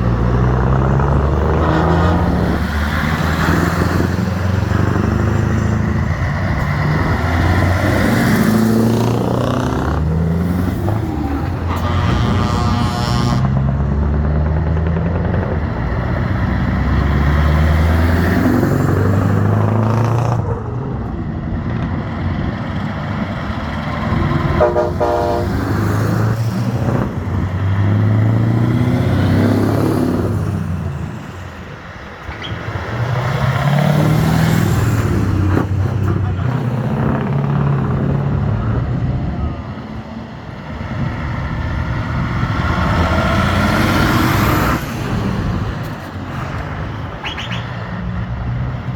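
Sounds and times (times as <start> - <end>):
trucks driving past: 0.0 - 48.9
short horn toot: 11.7 - 13.6, 24.6 - 25.5.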